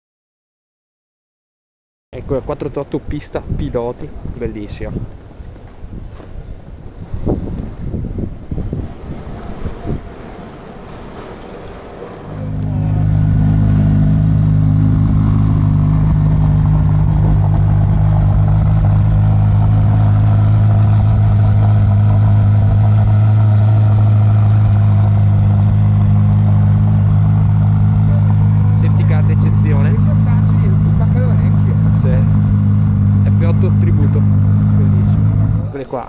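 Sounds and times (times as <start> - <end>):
car engine running: 12.2 - 36.0.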